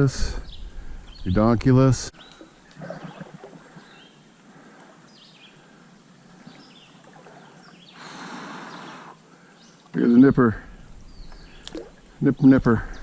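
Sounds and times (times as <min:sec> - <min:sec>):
soft outdoor hiss: 0:00.0 - 0:13.0
small birds chirping: 0:00.3 - 0:13.0.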